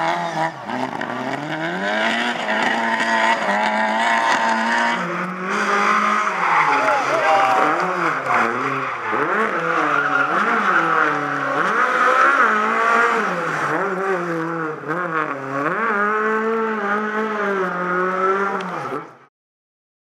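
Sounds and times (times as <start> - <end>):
car engine revving hard: 0.0 - 19.2.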